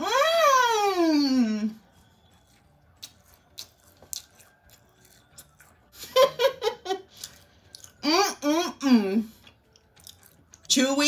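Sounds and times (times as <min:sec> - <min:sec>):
person chewing: 0:01.8 - 0:08.3, 0:09.2 - 0:10.7.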